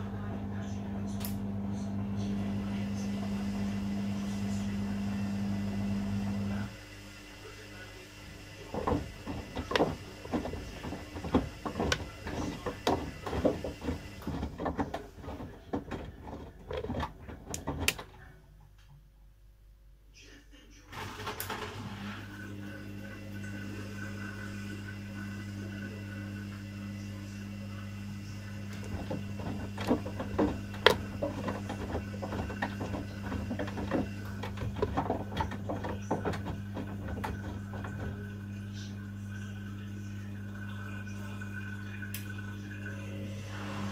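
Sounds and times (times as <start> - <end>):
washing machine hum: 0.0 - 20.0, 20.8 - 43.9
drum tumbling clicks and knocks: 8.6 - 18.9, 28.6 - 38.5.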